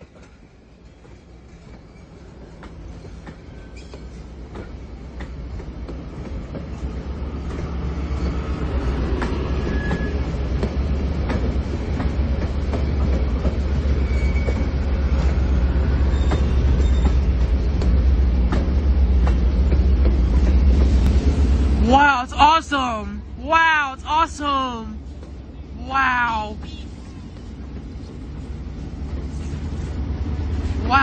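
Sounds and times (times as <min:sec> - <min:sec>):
train coaches rumbling and rattling: 0:00.0 - 0:31.0
faint wheel squeals: 0:01.6 - 0:04.2, 0:09.6 - 0:10.3, 0:13.8 - 0:17.3
wheels clicking over rail joints: 0:09.0 - 0:14.9.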